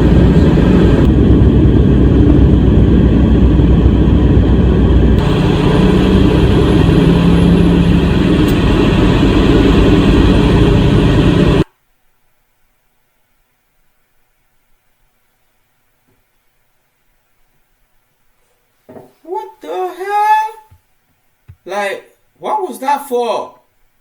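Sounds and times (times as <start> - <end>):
vehicle engine and road noise: 0.0 - 11.7.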